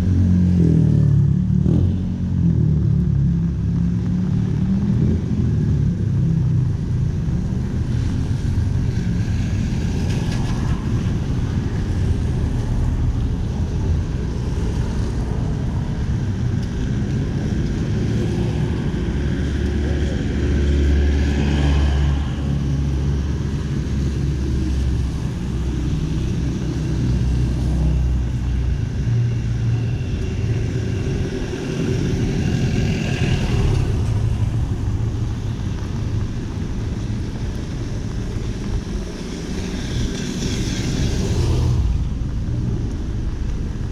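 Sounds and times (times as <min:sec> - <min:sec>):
cars and motorcycles passing: 0:00.0 - 0:43.9.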